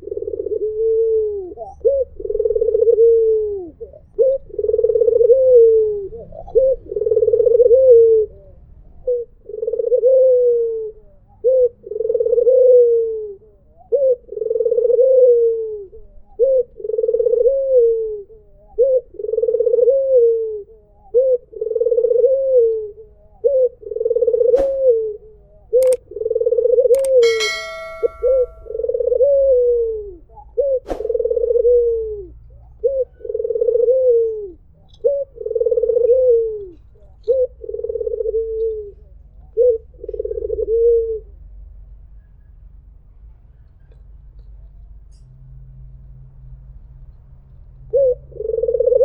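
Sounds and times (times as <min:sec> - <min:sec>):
dove cooing: 0:00.0 - 0:25.2, 0:30.6 - 0:41.3, 0:47.9 - 0:49.0
brief click: 0:27.0 - 0:28.6
short high tone: 0:27.2 - 0:28.7.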